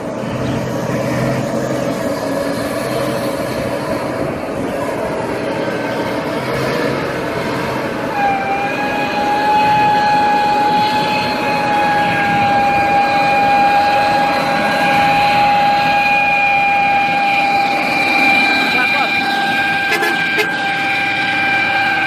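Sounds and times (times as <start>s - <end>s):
heavy truck engine labouring: 0.0s - 22.0s
steady high-pitched whine: 8.0s - 22.0s.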